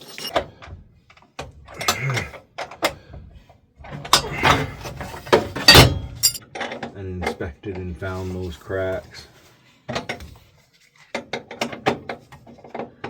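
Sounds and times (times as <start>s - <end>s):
metal clatter and scraping: 0.0s - 0.4s, 4.1s - 6.4s
hand tools knocking on metal: 5.7s - 6.4s.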